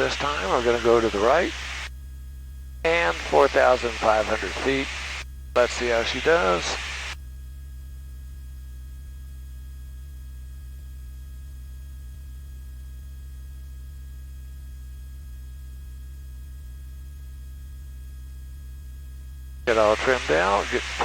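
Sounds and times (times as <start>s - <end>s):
aircraft engine hum on intercom: 0.0s - 1.9s, 2.9s - 7.2s, 19.7s - 21.0s
faint whining tones: 0.0s - 1.9s, 2.9s - 7.2s, 19.7s - 21.0s.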